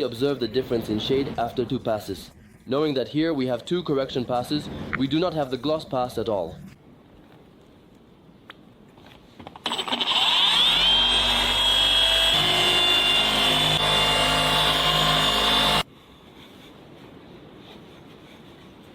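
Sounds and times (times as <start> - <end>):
polishing machine whining: 10.0 - 15.8.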